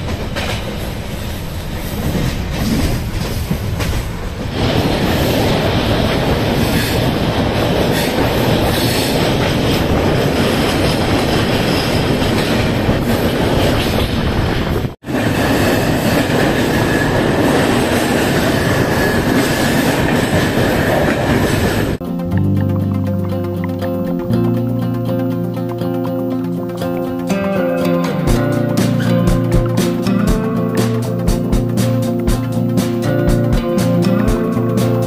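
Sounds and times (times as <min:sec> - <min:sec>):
train wheels on rails: 0:00.0 - 0:22.0
music: 0:22.0 - 0:35.0.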